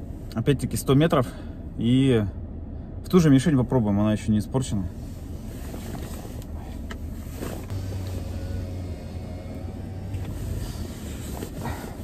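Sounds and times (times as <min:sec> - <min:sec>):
car engine idling: 0:04.7 - 0:12.0
low hum: 0:06.4 - 0:12.0.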